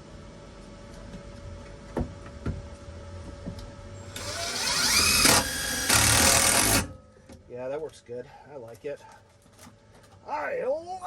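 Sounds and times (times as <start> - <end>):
power drill driving a screw: 4.1 - 6.9.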